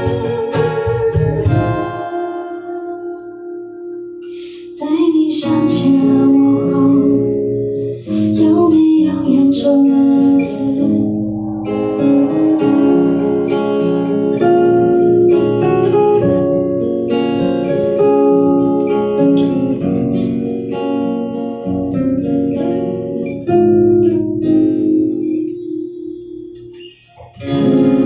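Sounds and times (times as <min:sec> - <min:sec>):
voices singing: 0:00.0 - 0:02.0
acoustic guitar: 0:00.0 - 0:28.0.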